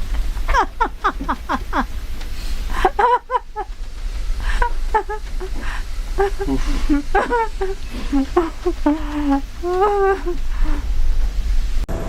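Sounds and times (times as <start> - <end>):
steady low rumble: 0.0 - 12.0
people exclaiming and laughing: 4.4 - 10.9.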